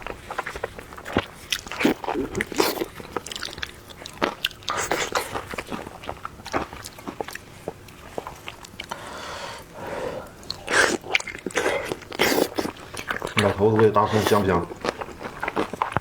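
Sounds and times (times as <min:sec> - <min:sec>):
person biting and chewing food: 0:00.0 - 0:09.1, 0:10.2 - 0:16.0.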